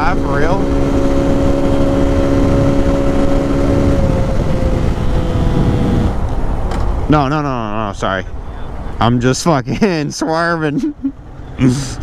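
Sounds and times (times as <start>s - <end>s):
wind rush on microphone: 0.0s - 7.5s
motorcycle engine drone: 0.0s - 8.6s.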